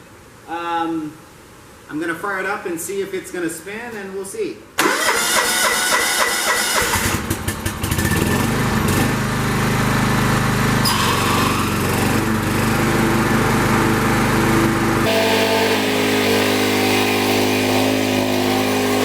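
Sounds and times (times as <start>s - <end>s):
lawn tractor engine cranking: 4.8s - 8.2s, 15.0s - 19.0s
lawn tractor engine running: 4.8s - 19.0s.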